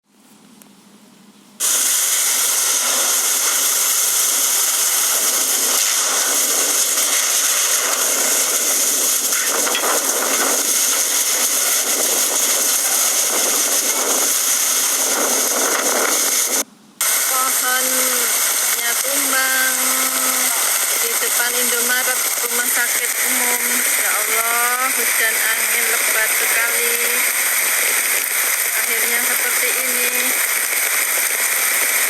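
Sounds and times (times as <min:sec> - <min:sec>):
strong wind: 0:01.6 - 0:17.3
heavy rain pouring: 0:01.6 - 0:32.0.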